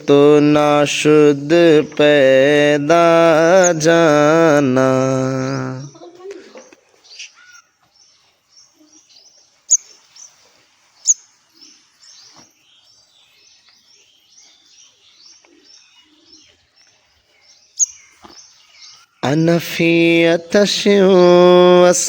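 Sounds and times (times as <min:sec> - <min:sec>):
loud sharp bird calls: 0:00.0 - 0:22.0
small bird chirping: 0:01.5 - 0:04.5, 0:06.5 - 0:19.3.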